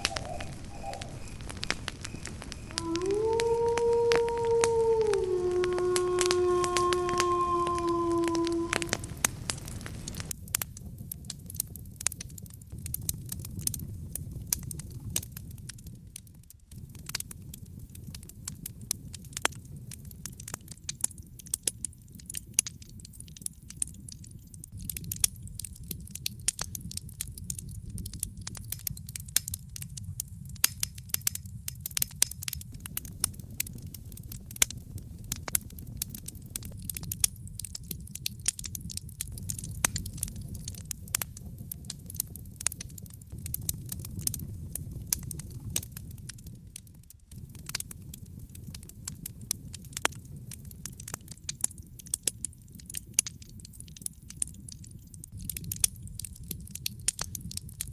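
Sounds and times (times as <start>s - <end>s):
campfire crackling and popping: 0.0s - 57.9s
low steady rumble: 32.6s - 47.5s.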